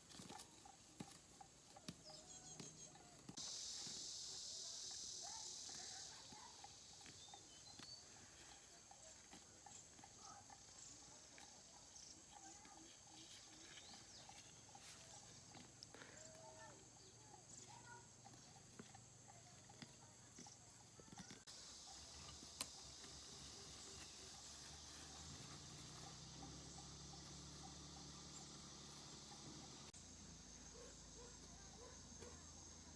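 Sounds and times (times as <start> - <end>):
small animal calls: 0.0 - 30.0.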